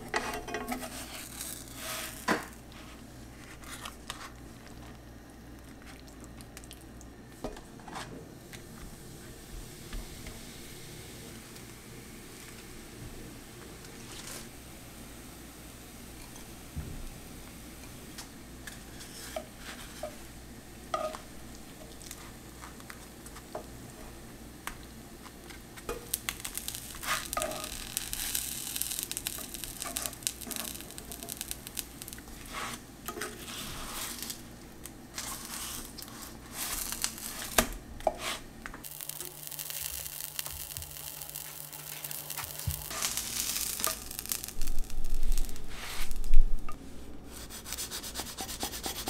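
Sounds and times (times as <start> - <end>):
utensil tapping and scraping pan: 0.0 - 2.5, 20.9 - 21.2
food sizzling in a frying pan: 0.0 - 4.9, 8.8 - 46.5.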